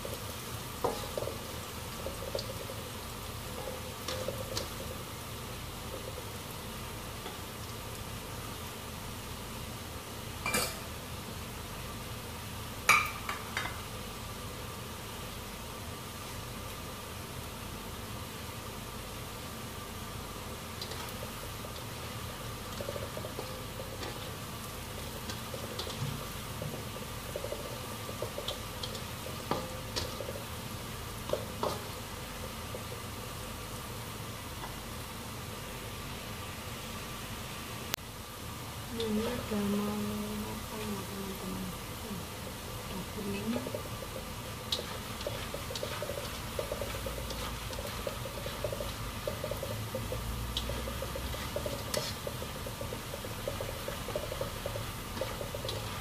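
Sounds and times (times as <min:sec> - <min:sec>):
food sizzling in hot oil: 0:00.0 - 0:56.0
spatula scraping and knocking pan: 0:00.8 - 0:02.8, 0:03.6 - 0:04.9, 0:22.6 - 0:30.6, 0:31.2 - 0:33.0, 0:43.4 - 0:56.0
metal kitchenware clinking: 0:10.4 - 0:10.8.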